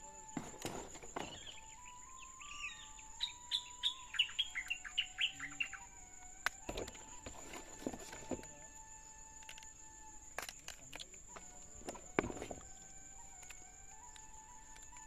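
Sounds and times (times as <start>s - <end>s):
bird chirping: 0.0s - 10.3s.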